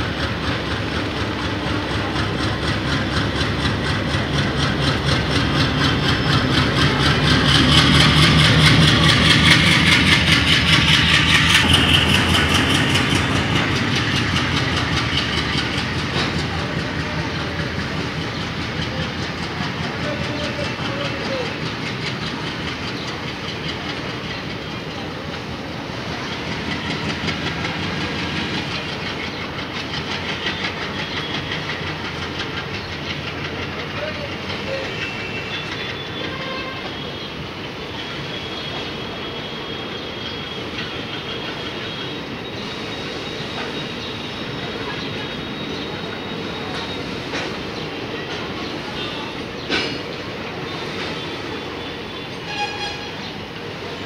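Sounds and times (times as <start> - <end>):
train wheels clattering over rail joints: 0.0 - 36.6, 46.4 - 48.8, 49.5 - 51.5.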